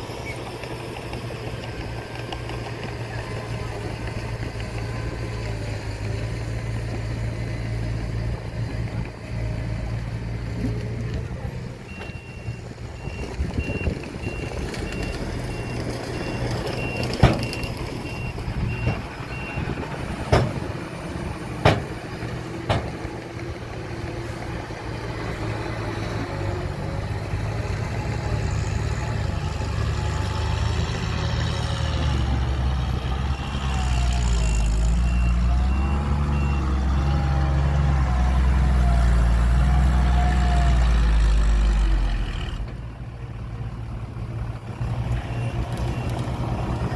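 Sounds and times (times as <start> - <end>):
heavy diesel machinery running: 0.0 - 46.9
sharp bangs: 21.6 - 22.1.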